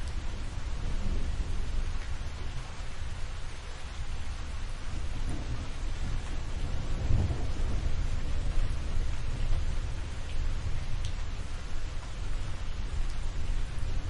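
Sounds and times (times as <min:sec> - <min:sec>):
rain hissing: 0:00.0 - 0:14.0
rolling thunder: 0:04.9 - 0:10.8.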